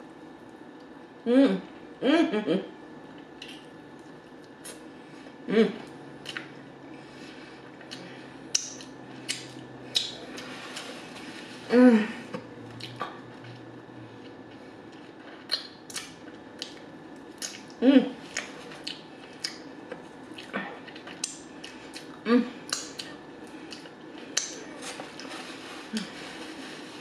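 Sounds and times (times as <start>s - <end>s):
person humming mmm: 1.2s - 2.8s, 5.4s - 6.0s, 11.6s - 13.8s, 17.4s - 18.5s, 22.0s - 23.8s
wet chewing and lip smacks: 14.2s - 17.7s, 18.3s - 24.6s.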